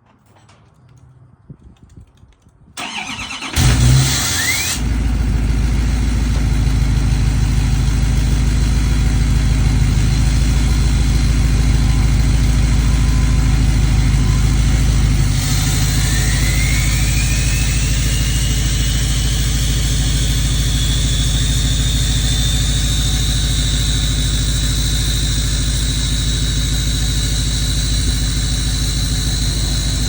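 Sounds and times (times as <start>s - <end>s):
diesel engine cranking: 0.0s - 30.0s
diesel engine idling: 2.8s - 30.0s
turbo whistle rising: 10.6s - 30.0s.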